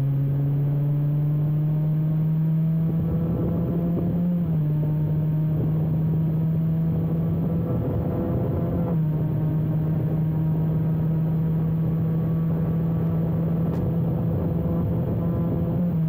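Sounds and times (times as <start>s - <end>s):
motorcycle engine at high revs: 0.0s - 16.0s
wind noise: 2.8s - 4.6s, 5.4s - 10.8s, 11.7s - 16.0s.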